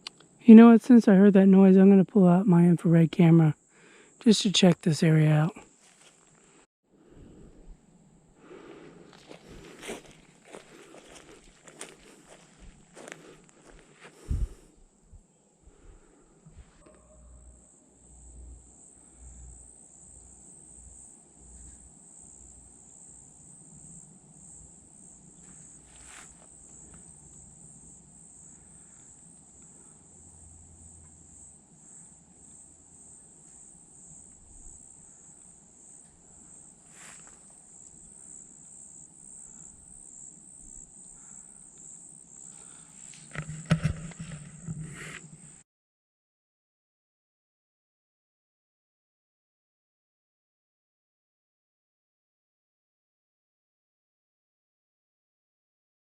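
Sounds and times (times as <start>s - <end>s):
insects chorus: 0.1s - 45.6s.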